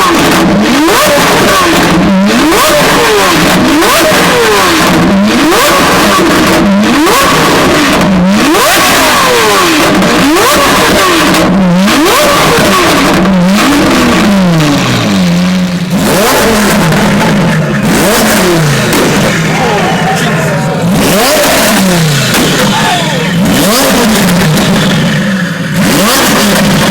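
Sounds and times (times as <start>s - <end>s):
sports car engine revving: 0.0s - 26.9s.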